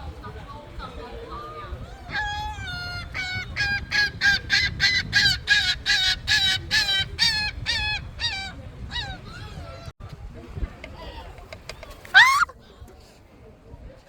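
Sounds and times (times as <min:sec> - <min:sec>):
gull calling harshly: 0:12.1 - 0:12.5.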